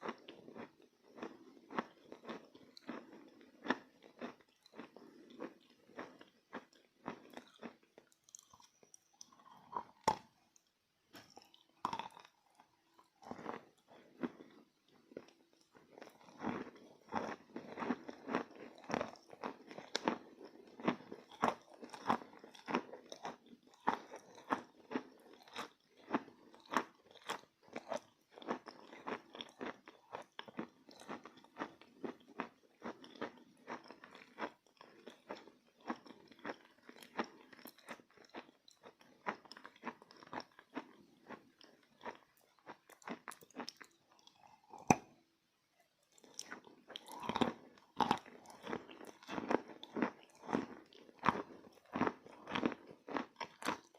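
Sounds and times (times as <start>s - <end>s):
person chewing chalk crunching: 0.0s - 45.2s, 45.8s - 53.9s.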